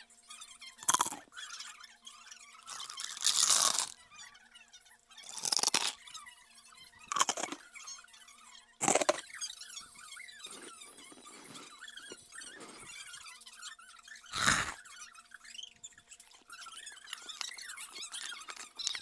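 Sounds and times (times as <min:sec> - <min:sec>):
crunching and chewing food: 0:00.8 - 0:01.4, 0:02.6 - 0:04.0, 0:05.2 - 0:06.2, 0:07.0 - 0:07.7, 0:08.8 - 0:13.2, 0:14.3 - 0:14.8, 0:16.2 - 0:19.0.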